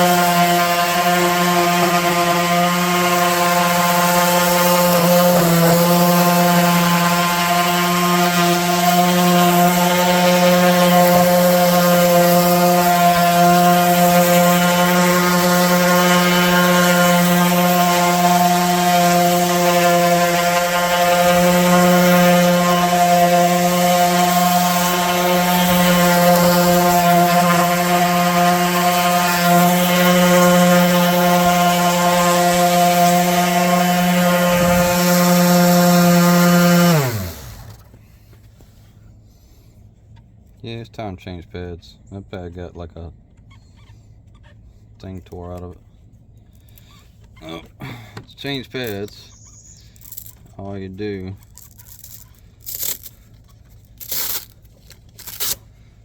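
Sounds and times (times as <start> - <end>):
orbital sander on wood: 0.0 - 38.0.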